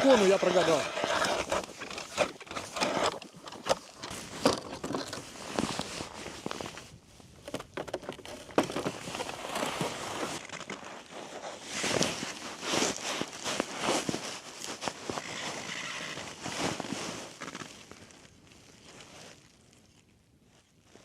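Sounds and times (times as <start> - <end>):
footsteps crunching on snowy ice: 0.0 - 2.2, 8.8 - 19.7.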